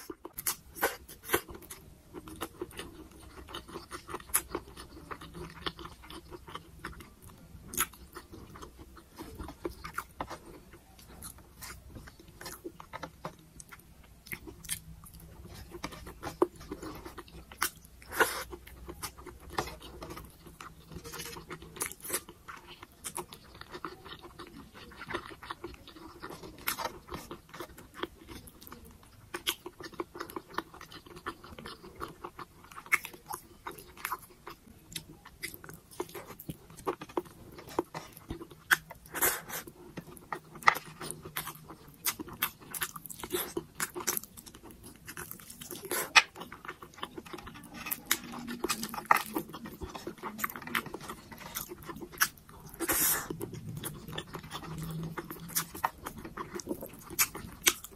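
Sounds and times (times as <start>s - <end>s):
chewing food: 0.0s - 57.9s.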